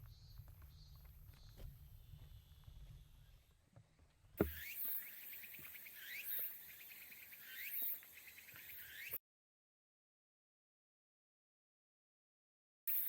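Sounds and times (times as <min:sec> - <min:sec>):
cicadas buzzing: 0:04.4 - 0:09.2.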